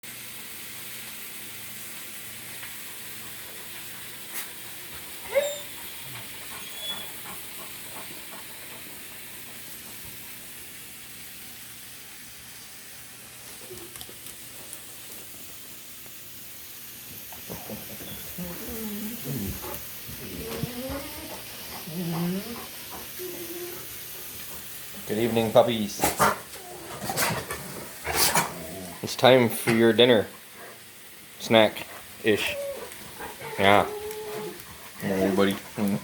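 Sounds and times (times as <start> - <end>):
steady hiss: 0.1 - 36.0
dog whining: 5.2 - 8.1, 17.5 - 24.0, 26.5 - 27.4, 28.2 - 29.0, 32.4 - 35.8.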